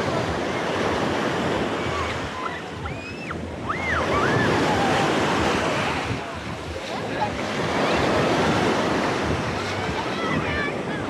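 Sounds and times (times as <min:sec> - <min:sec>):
sea waves washing onto beach: 0:00.0 - 0:11.0
wind buffeting microphone: 0:00.0 - 0:11.0.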